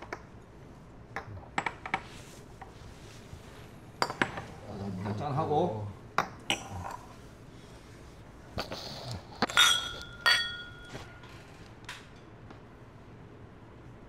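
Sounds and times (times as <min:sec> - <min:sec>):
glasses clinking: 0:04.0 - 0:04.5, 0:06.2 - 0:07.1, 0:09.4 - 0:11.3.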